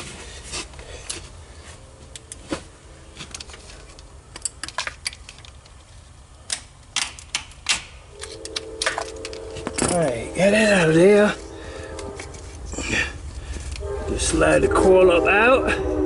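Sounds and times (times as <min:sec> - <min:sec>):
hand tools clicking on metal: 0:06.5 - 0:10.2.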